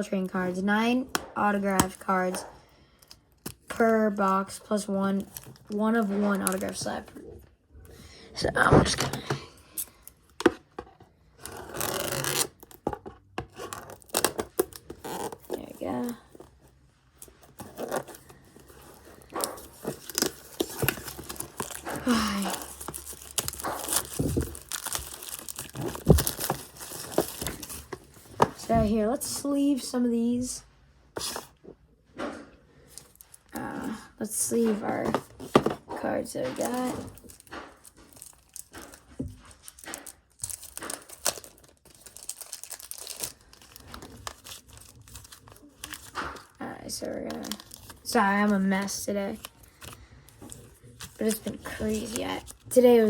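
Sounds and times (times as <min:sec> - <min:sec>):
plastic packaging crinkling and tearing: 0:05.0 - 0:07.1, 0:11.4 - 0:28.8, 0:32.9 - 0:34.0, 0:36.3 - 0:53.0.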